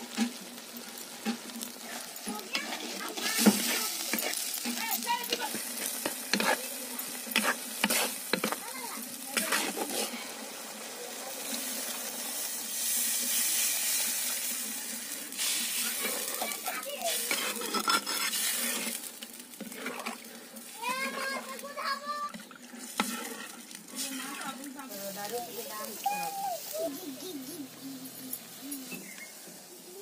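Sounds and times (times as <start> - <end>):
water poured into hot pan: 0.0 - 26.9
masala frying and sizzling: 0.0 - 30.0
spatula scraping a pan: 0.1 - 0.5, 1.2 - 10.4, 15.3 - 25.3.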